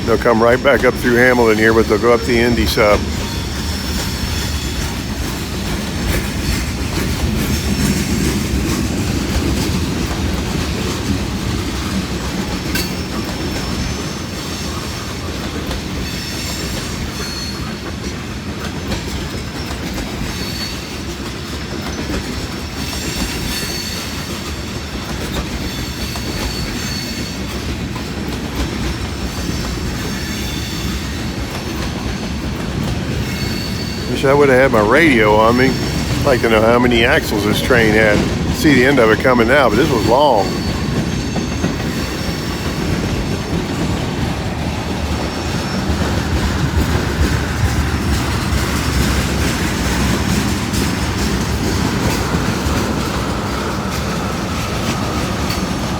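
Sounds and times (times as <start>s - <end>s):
freight train rumbling past: 0.0s - 55.9s.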